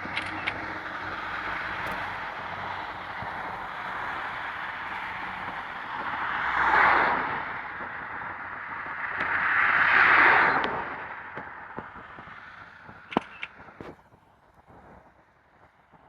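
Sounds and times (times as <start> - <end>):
vehicle passing: 0.0 - 8.2
road vehicle noise: 0.0 - 16.0.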